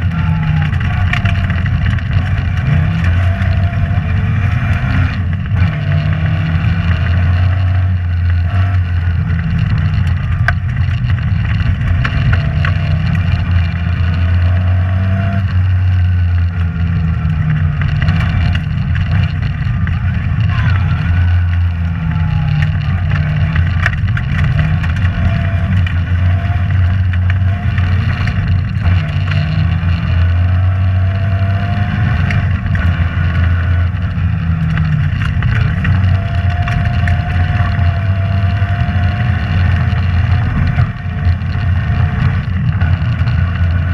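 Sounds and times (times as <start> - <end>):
rally car engine revving: 0.0 - 43.9
knocks and clicks from car: 8.4 - 14.2, 33.9 - 43.8.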